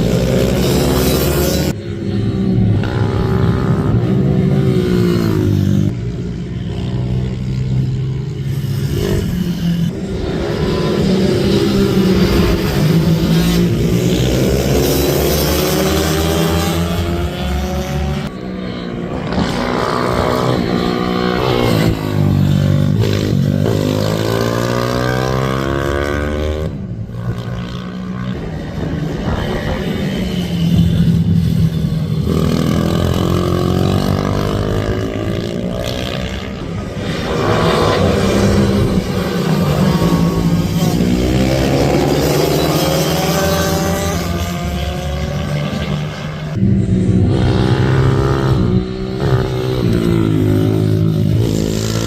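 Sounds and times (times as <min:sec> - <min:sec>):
racing minibike engines revving: 0:00.0 - 0:52.0.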